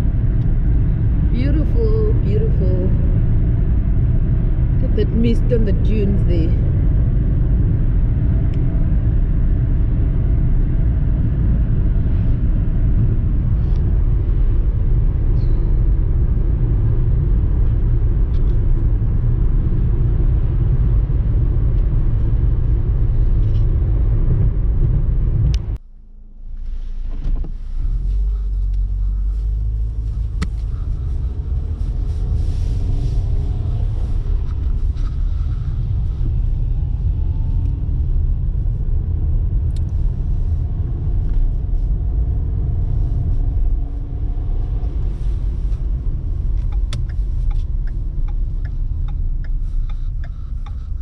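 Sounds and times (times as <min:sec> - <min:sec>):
car road and engine rumble: 0:00.0 - 0:51.0.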